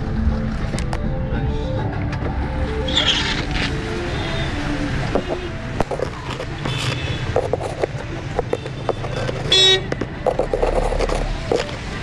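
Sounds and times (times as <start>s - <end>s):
vehicle engine and road rumble: 0.0s - 12.0s
vehicle horn toot: 9.4s - 9.9s.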